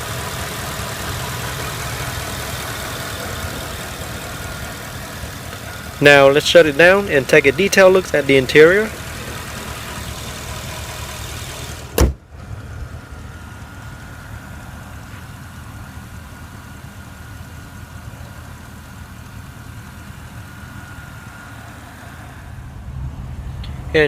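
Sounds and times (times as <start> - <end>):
car engine idling: 0.0 - 24.0
hood slamming shut: 11.6 - 12.4.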